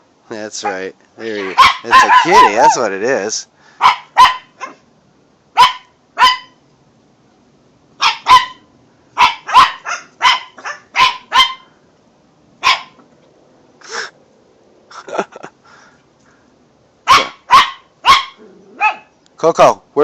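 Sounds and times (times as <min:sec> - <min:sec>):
small dog yapping: 0:00.6 - 0:02.8, 0:03.8 - 0:04.8, 0:05.6 - 0:06.6, 0:08.0 - 0:11.7, 0:12.6 - 0:13.0, 0:17.0 - 0:19.1.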